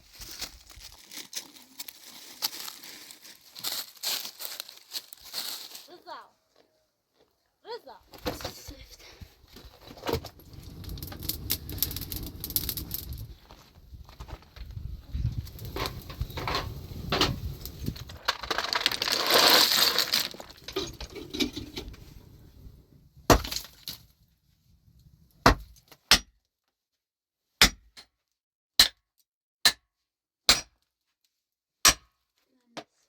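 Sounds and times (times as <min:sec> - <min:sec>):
scraping and clattering: 0:08.1 - 0:24.1.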